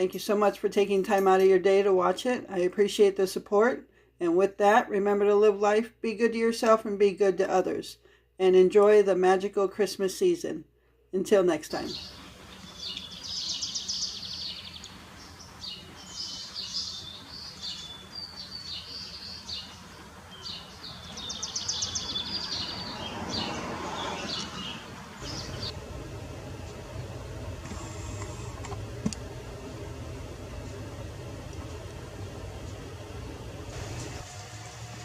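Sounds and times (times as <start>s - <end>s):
steady low hum: 11.8s - 23.8s, 24.4s - 35.0s
songbirds trilling and chirping: 11.8s - 25.8s.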